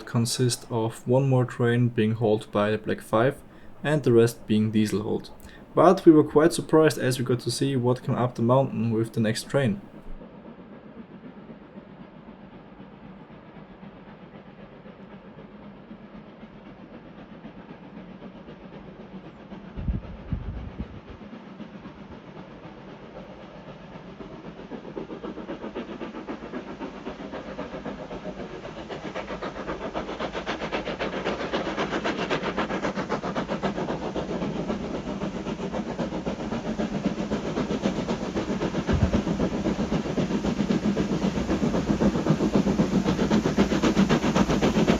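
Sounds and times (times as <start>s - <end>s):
steam locomotive exhaust beats: 0.0s - 44.9s
low bump: 38.9s - 39.8s.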